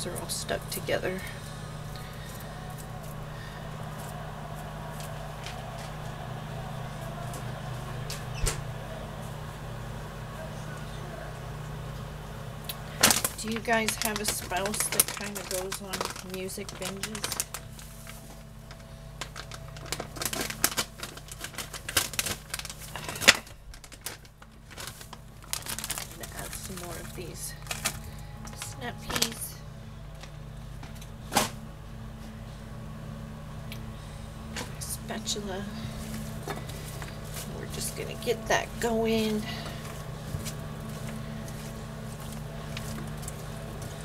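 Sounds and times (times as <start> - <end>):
steady low hum: 0.0 - 44.0
vegetables crackling in a pan: 12.7 - 29.5, 36.0 - 44.0.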